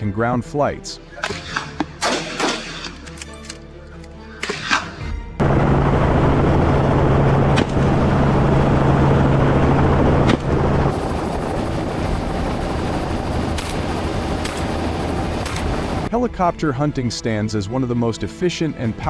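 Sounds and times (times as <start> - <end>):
helicopter rotor and engine: 5.4 - 16.1.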